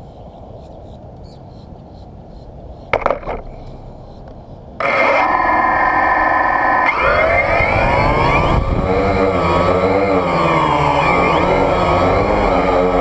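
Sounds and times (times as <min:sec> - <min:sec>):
quadcopter motors whining: 0:04.8 - 0:13.0.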